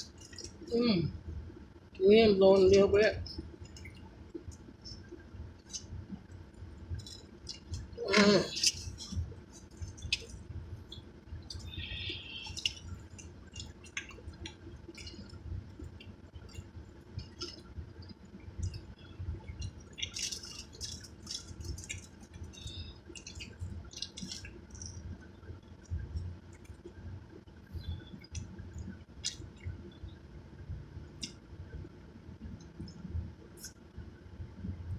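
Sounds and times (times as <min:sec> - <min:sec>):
chewing with wet mouth smacks: 0:00.0 - 0:00.7, 0:03.3 - 0:27.0, 0:27.6 - 0:30.1, 0:31.2 - 0:31.5
hum-like voice: 0:00.7 - 0:01.2, 0:11.6 - 0:12.6.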